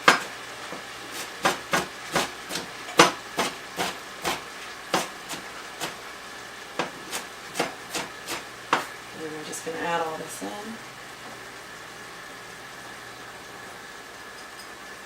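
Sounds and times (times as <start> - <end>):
knife chopping on cutting board: 0.0 - 0.3, 1.1 - 6.0, 6.8 - 9.0
meat sizzling in a pan: 0.0 - 10.4.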